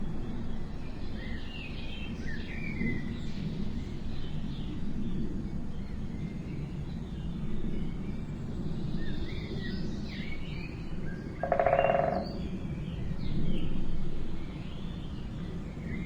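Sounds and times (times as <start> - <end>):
buzzy rattling bird call: 11.4 - 12.4.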